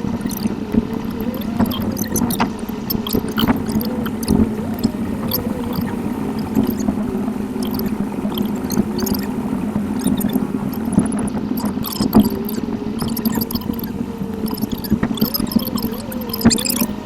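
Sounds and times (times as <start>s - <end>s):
scattered clicks: 0.0s - 17.0s
sped-up engine and road hum: 0.0s - 17.0s
wavering whine: 0.0s - 17.0s.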